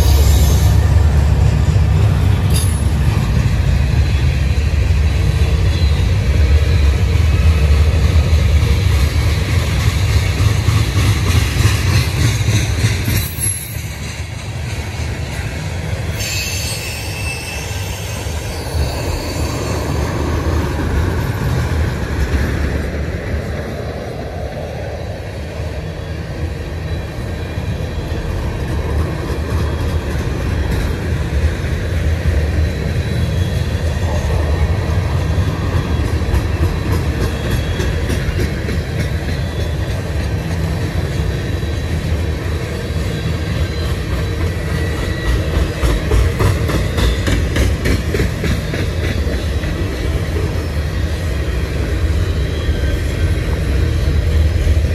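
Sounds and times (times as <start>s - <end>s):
freight train wheels rumbling: 0.0s - 54.9s
thin wheel squeals: 16.1s - 20.2s.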